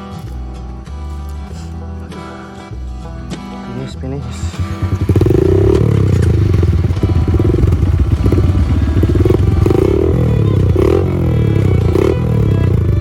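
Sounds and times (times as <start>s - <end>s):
motorcycle engine revving: 4.3s - 13.0s.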